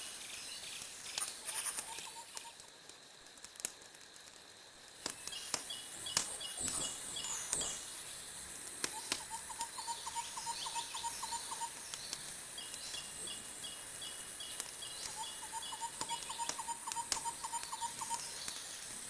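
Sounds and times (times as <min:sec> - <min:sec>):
high insect-like whine: 0:00.0 - 0:19.0
rapid animal chirps: 0:00.2 - 0:02.7, 0:08.9 - 0:13.0, 0:15.0 - 0:18.6
wood fire crackling and popping: 0:00.3 - 0:09.7, 0:11.4 - 0:19.0.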